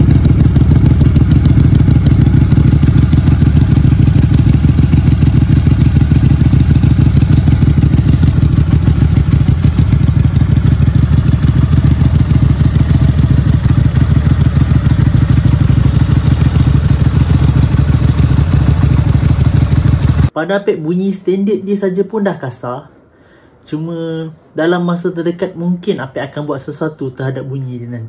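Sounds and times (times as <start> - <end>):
motorcycle engine idling: 0.0 - 20.4.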